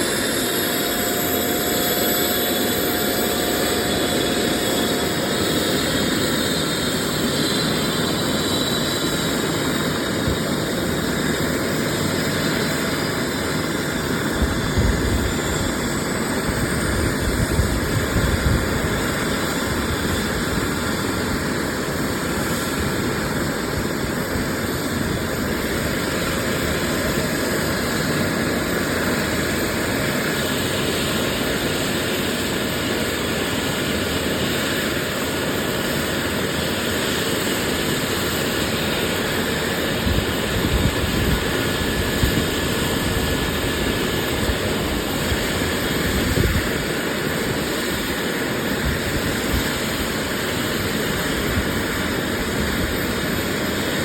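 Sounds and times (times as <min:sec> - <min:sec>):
aircraft turbine engine running: 0:00.0 - 0:54.0
low rumbling gusts: 0:09.2 - 0:27.4, 0:38.8 - 0:54.0.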